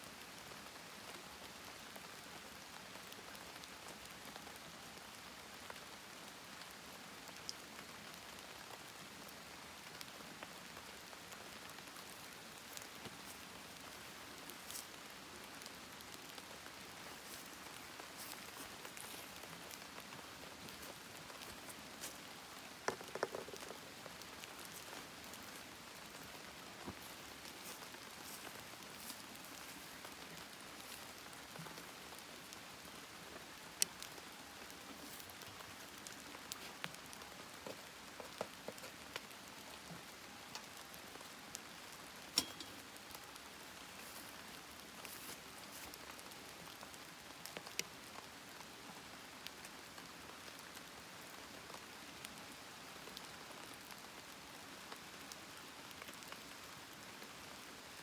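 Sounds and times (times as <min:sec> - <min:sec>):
campfire hiss: 0:00.0 - 0:58.0
campfire crackling and popping: 0:09.8 - 0:39.8, 0:40.4 - 0:48.0.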